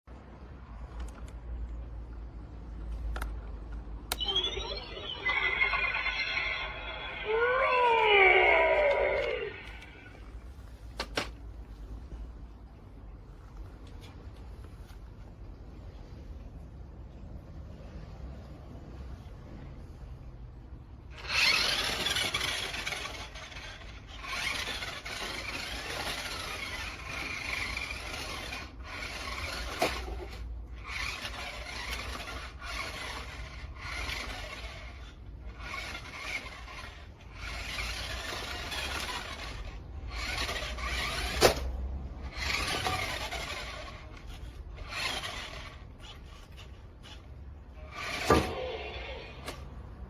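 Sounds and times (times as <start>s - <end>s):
toy truck motor whirring: 4.2s - 10.5s, 21.1s - 49.7s.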